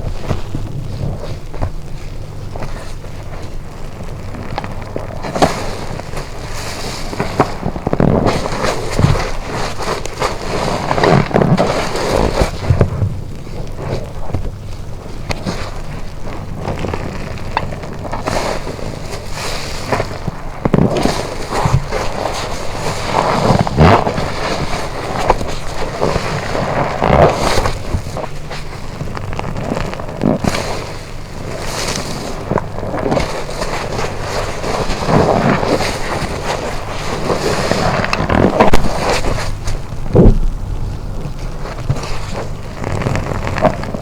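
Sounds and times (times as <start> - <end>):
wet sponge squelching: 0.0 - 44.0.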